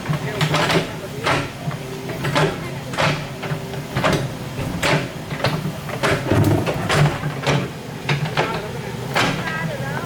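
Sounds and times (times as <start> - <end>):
excavator engine hum: 0.0 - 9.9
mechanical clanks and squeaks: 6.0 - 7.6.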